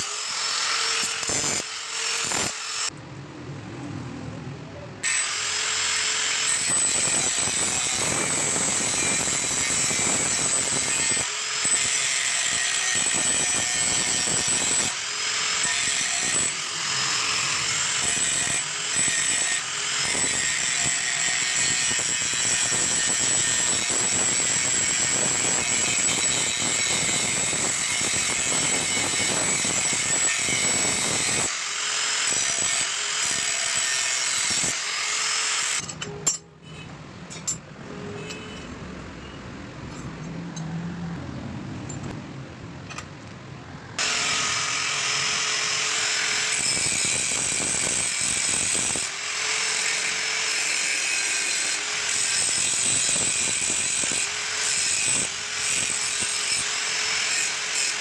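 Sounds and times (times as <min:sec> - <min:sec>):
power tool whining on metal: 0:00.0 - 0:02.9, 0:44.0 - 0:58.0.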